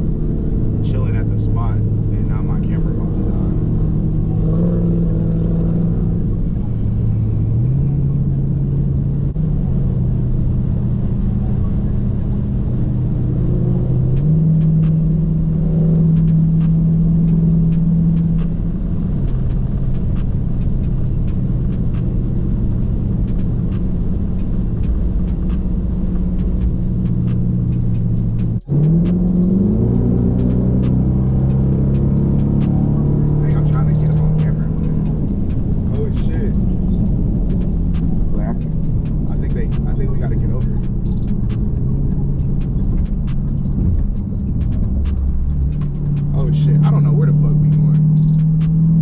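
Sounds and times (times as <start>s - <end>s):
car engine droning: 0.0s - 49.0s.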